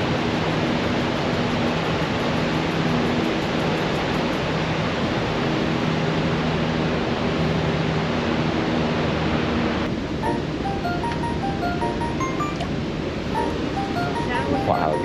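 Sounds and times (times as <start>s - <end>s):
melody of high notes: 10.2s - 15.0s.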